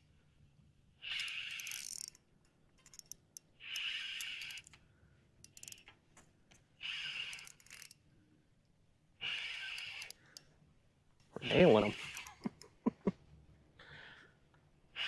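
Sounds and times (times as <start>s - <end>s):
fishing reel whirring and clicking: 1.0s - 2.2s, 2.8s - 4.8s, 5.4s - 5.9s, 6.8s - 8.0s, 9.2s - 10.5s, 11.5s - 12.7s.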